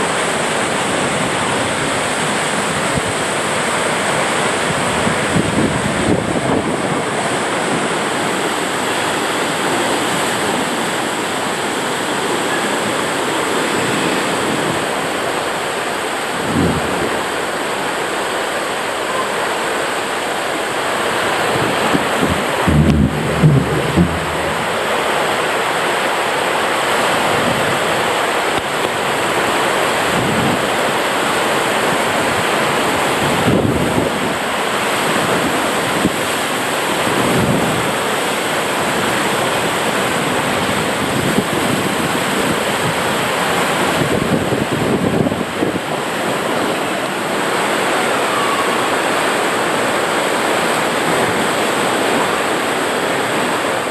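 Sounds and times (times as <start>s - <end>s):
ride tube sliding down water slide: 0.0s - 53.9s
rushing water: 0.0s - 53.9s
low bumps of tube: 21.9s - 25.2s.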